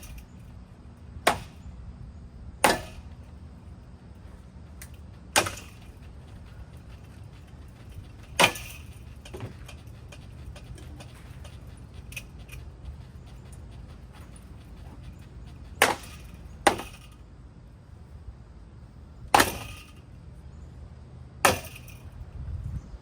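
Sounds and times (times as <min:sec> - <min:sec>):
steady low hum: 0:00.0 - 0:23.0
sharp cracking strikes on fan: 0:01.2 - 0:01.7, 0:02.6 - 0:03.3, 0:04.8 - 0:07.0, 0:07.8 - 0:09.5, 0:15.8 - 0:17.2, 0:21.4 - 0:22.1.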